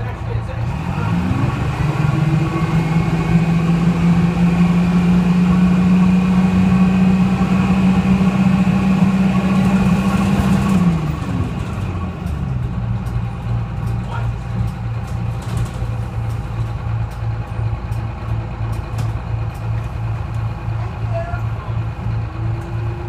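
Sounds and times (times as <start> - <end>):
bus diesel engine under load: 0.0 - 23.0.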